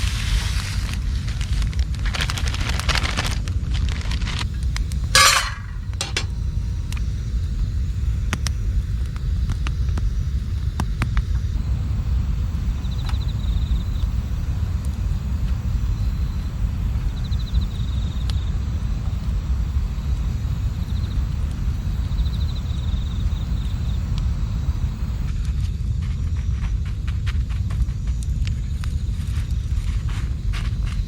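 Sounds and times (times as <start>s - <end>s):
light clinks and knocks: 5.2s - 6.3s.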